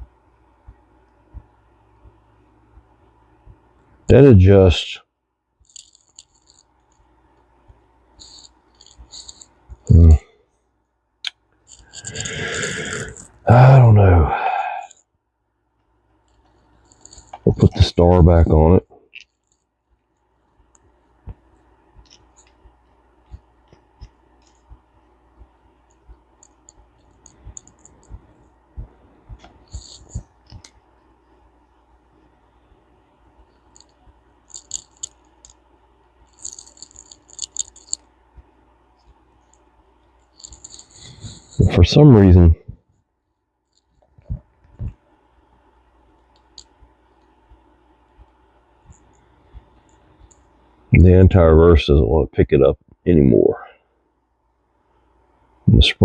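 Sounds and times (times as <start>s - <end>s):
metal fishing reel parts clicking: 5.6s - 7.0s, 8.2s - 9.5s, 33.7s - 35.6s, 36.3s - 38.1s, 40.3s - 41.6s.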